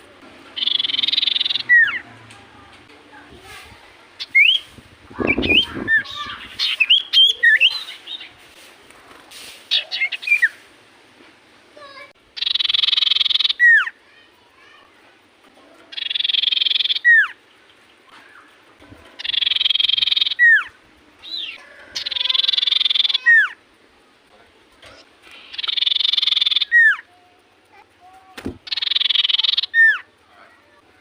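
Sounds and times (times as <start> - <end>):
bird singing buzzy trill: 0.5 - 2.1, 4.2 - 8.4, 12.3 - 14.0, 15.9 - 18.6, 19.2 - 23.6, 25.2 - 27.1, 28.6 - 30.2.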